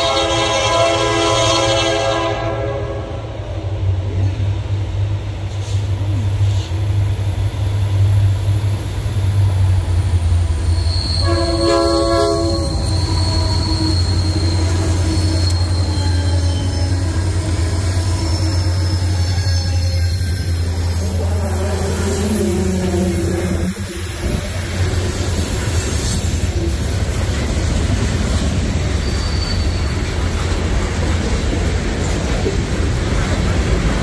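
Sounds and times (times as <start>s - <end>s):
train horn blast: 0.0s - 3.4s, 11.2s - 20.3s, 21.1s - 24.4s
diesel locomotive rumble: 0.0s - 34.0s
high wheel squeal: 10.2s - 31.6s.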